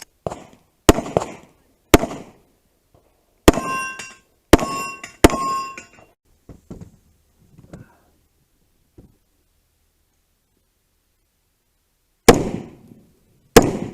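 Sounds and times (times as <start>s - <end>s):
gunshots: 0.2s - 2.4s, 3.5s - 3.9s, 4.5s - 5.7s, 12.3s - 12.8s, 13.5s - 13.9s
bullet ringing on steel target: 3.5s - 6.1s.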